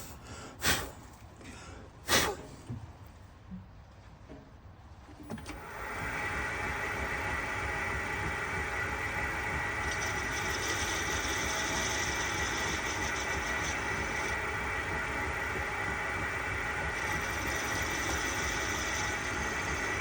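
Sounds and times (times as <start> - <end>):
metal lathe humming and whining: 5.6 - 20.0.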